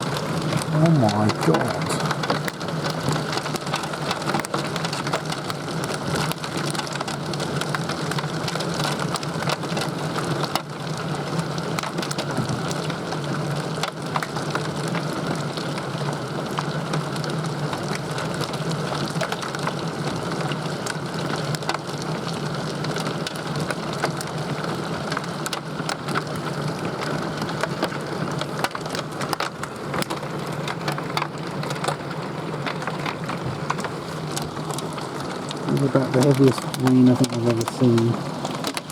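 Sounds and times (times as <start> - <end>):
hailstones striking hard surfaces: 0.0 - 38.9
torrential rain pouring: 0.0 - 38.9.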